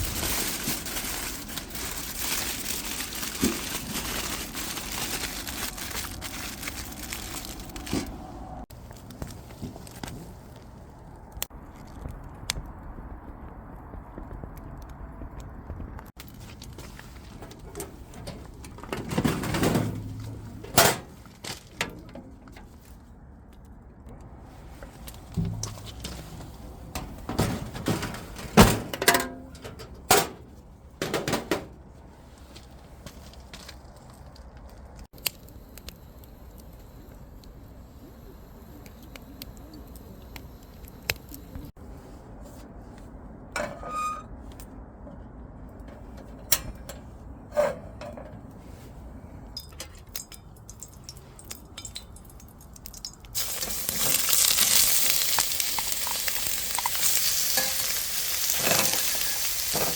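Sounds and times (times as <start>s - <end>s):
pan frying sizzle: 53.0s - 59.9s.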